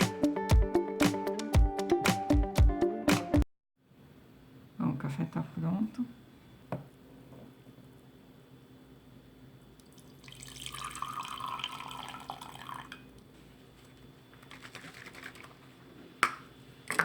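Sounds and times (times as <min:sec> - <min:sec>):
coffee pouring into a cup: 0:09.8 - 0:13.2.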